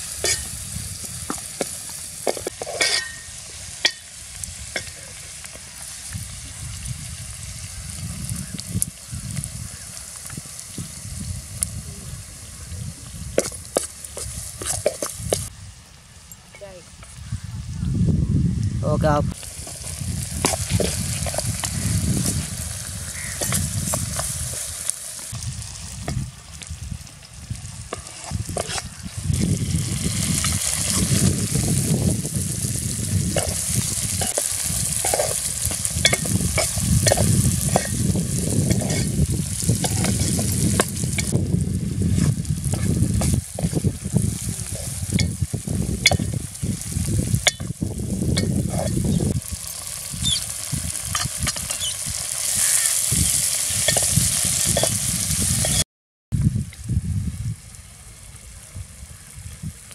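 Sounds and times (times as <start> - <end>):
vegetables sizzling in oil: 0.0 - 17.8, 19.0 - 55.8
steel spoon scraping pot: 0.2 - 0.6, 2.4 - 4.0, 27.9 - 29.0, 33.3 - 41.4, 48.3 - 55.0.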